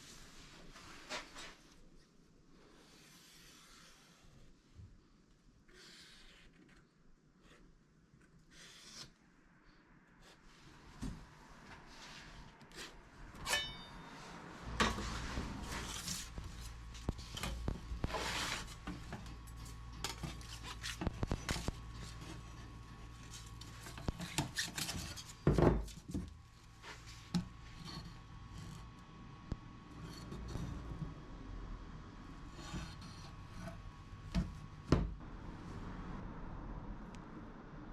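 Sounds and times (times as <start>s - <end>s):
steady low hum: 12.4s - 24.5s.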